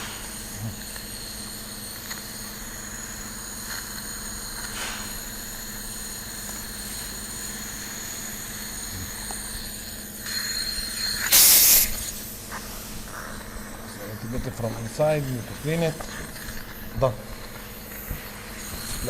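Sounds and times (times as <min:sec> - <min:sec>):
machine hum with whining tones: 0:00.0 - 0:19.0
short loud hiss: 0:11.3 - 0:12.2.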